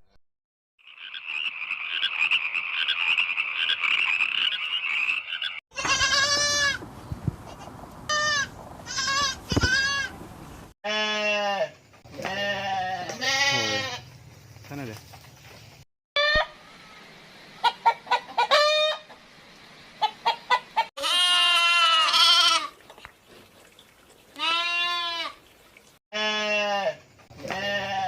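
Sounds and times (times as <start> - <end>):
frog chorus croaking: 0.8 - 5.6
bleating calls: 5.7 - 6.8, 8.1 - 10.1, 10.9 - 14.0, 21.0 - 22.7, 24.4 - 25.4, 26.1 - 28.0.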